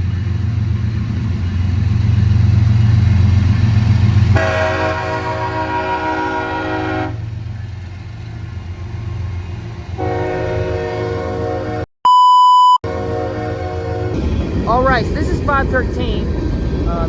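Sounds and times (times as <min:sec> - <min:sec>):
passing train rumble: 0:00.0 - 0:11.8, 0:12.8 - 0:17.0
locomotive air horn blasts: 0:04.3 - 0:07.3, 0:10.0 - 0:11.8, 0:12.8 - 0:14.2
electronic beep: 0:12.1 - 0:12.8.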